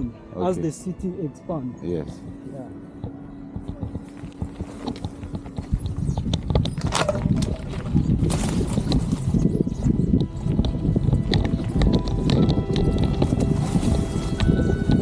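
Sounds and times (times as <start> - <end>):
bicycle knocks and rattles: 3.0 - 15.0.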